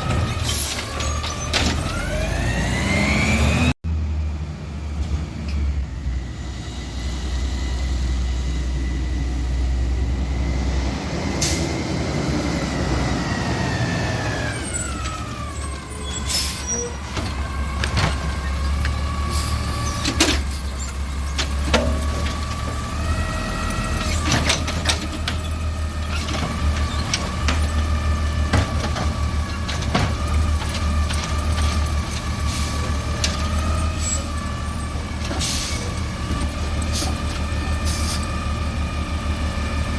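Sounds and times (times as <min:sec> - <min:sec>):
diesel engine rumble: 0:00.0 - 0:39.9
sharp clanks and bangs: 0:16.3 - 0:23.0, 0:23.9 - 0:34.3.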